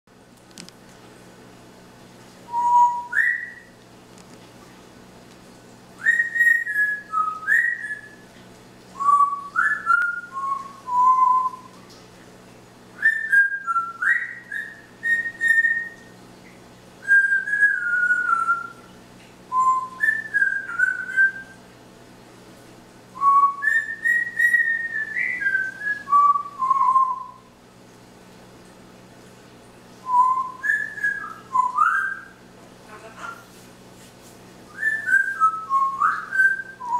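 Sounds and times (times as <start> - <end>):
parrot whistling: 2.5 - 3.8, 6.0 - 8.2, 9.0 - 11.8, 13.0 - 16.1, 17.0 - 18.9, 19.5 - 21.6, 23.2 - 27.5, 30.0 - 32.4, 34.7 - 36.9.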